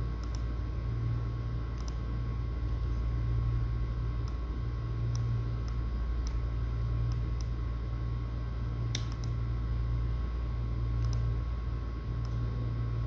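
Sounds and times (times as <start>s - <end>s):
steady low hum: 0.0s - 13.0s
light clicks: 11.0s - 11.3s.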